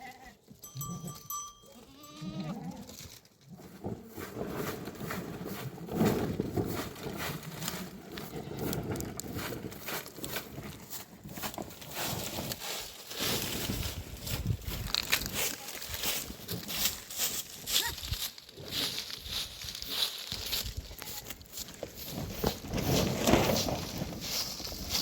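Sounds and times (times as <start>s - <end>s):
goats and sheep bleating: 0.0s - 3.1s, 20.7s - 21.4s
knocks and rustles of animals moving: 2.7s - 25.0s.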